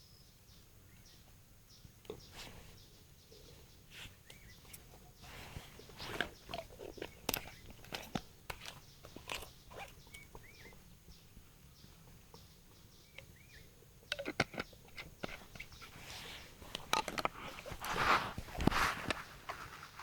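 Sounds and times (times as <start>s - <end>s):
bird chirping: 0.0s - 20.0s
light clicks and knocks from handling: 4.2s - 10.9s, 14.0s - 19.8s.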